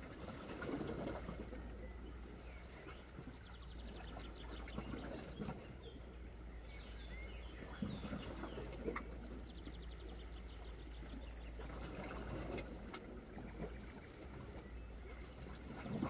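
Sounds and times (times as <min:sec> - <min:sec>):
small birds chirping: 0:01.6 - 0:12.2.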